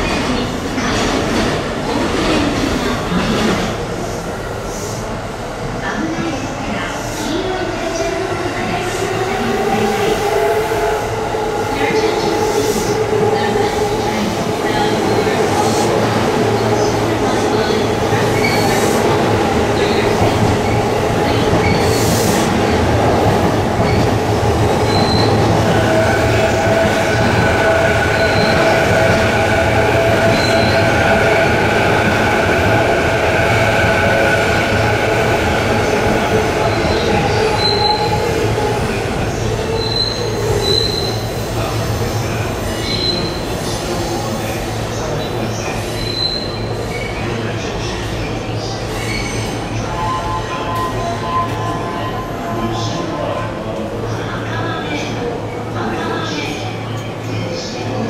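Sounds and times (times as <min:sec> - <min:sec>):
electric train rumbling: 0:00.0 - 0:58.0
wheels squealing on rails: 0:24.8 - 0:31.9, 0:36.6 - 0:38.3, 0:39.6 - 0:43.8, 0:45.2 - 0:47.3, 0:48.6 - 0:52.5.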